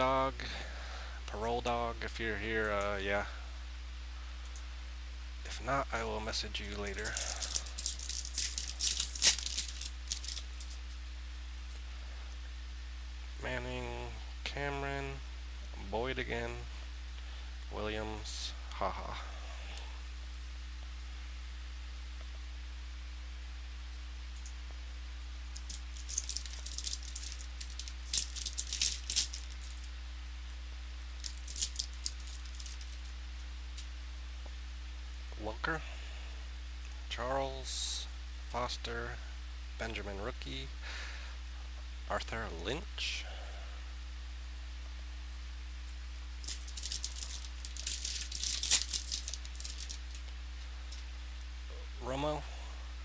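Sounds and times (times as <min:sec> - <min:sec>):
low electrical hum: 0:00.0 - 0:53.0
cards flipped by hand: 0:06.8 - 0:10.8, 0:25.6 - 0:29.9, 0:46.4 - 0:50.3.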